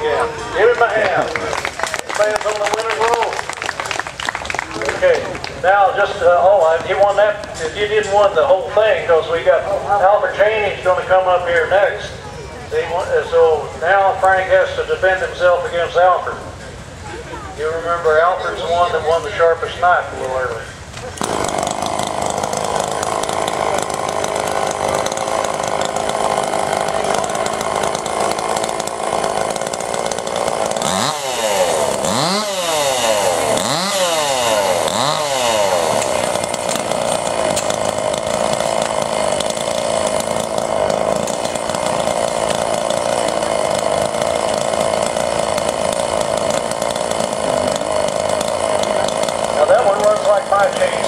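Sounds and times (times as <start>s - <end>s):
chainsaw engines at high revs: 21.0s - 51.0s.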